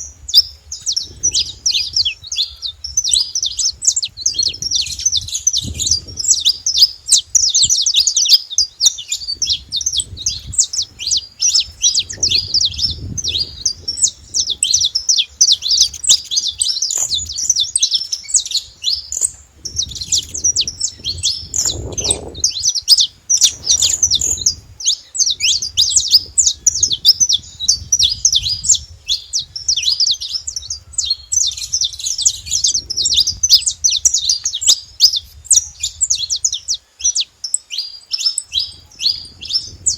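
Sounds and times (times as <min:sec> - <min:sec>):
finches chirping and trilling: 0:00.0 - 0:39.9.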